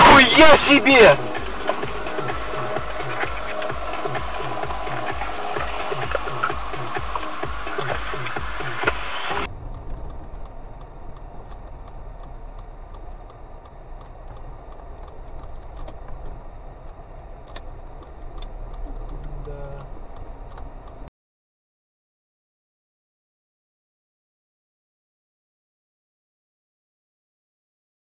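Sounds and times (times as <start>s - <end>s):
background music: 0.0s - 9.5s
car engine and road rumble: 0.0s - 21.1s
faint clicks: 5.6s - 21.1s.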